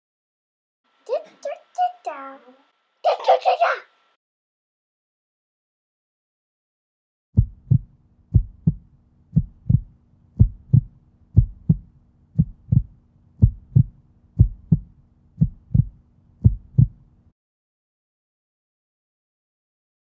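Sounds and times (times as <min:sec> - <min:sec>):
heartbeat thumps: 0:07.4 - 0:17.1.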